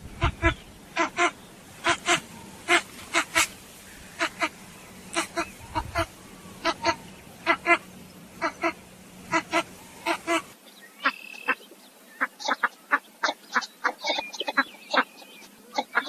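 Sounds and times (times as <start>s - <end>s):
ducks quacking: 0.0s - 16.0s.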